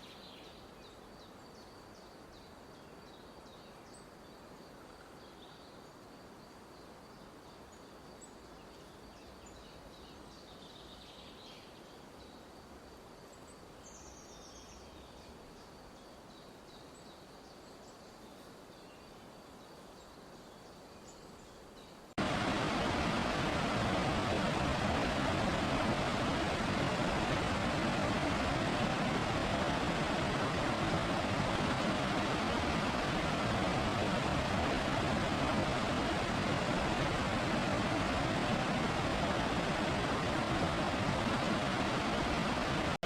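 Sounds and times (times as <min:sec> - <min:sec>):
soft steady hiss: 0:00.0 - 0:43.0
loud rushing noise: 0:22.2 - 0:43.0.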